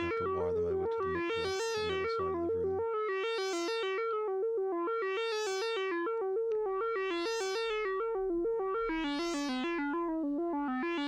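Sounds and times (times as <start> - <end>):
analog synthesizer sequence: 0.0 - 11.0.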